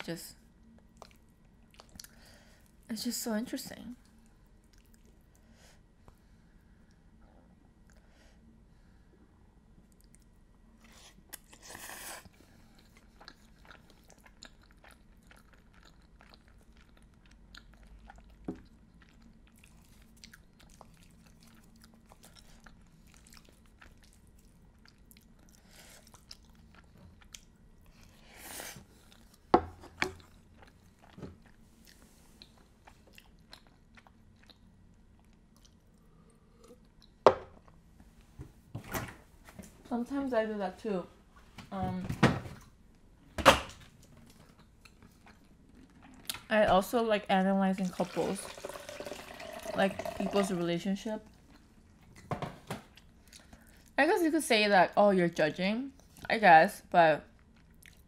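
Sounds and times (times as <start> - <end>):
person chewing pasta: 0.6 - 2.8, 4.1 - 5.5, 9.8 - 37.9, 44.0 - 46.5, 52.9 - 54.0, 57.3 - 58.0.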